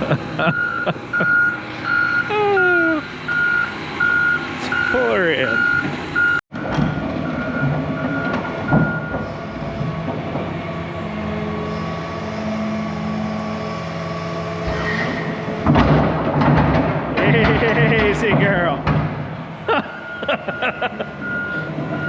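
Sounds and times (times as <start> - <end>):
diesel excavator running: 0.0 - 22.0
backup alarm beeping: 0.4 - 9.7, 19.9 - 22.0.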